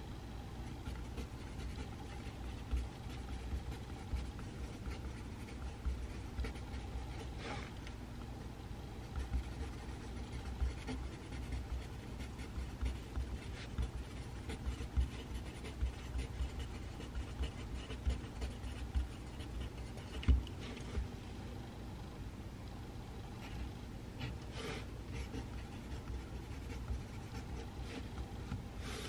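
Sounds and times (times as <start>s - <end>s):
pencil scratching on paper: 0.7s - 7.7s, 9.0s - 21.1s, 23.5s - 29.0s
pencil knocking on desk: 12.5s - 21.1s.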